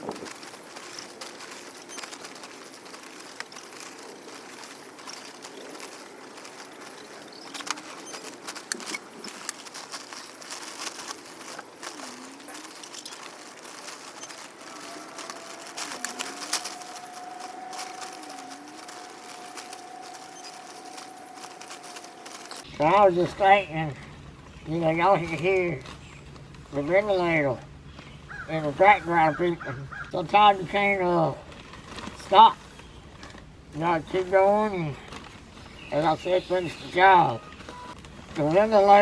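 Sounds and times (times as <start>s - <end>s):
ventilator alarm tone: 0.0s - 22.6s
metallic clinks and rattles: 0.0s - 22.7s.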